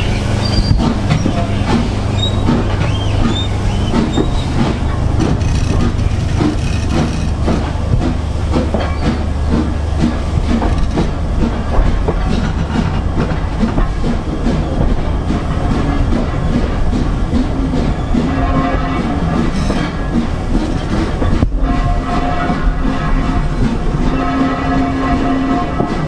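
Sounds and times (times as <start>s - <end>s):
steam train rumbling: 0.0s - 26.0s
wheels clattering over rails: 0.0s - 26.0s.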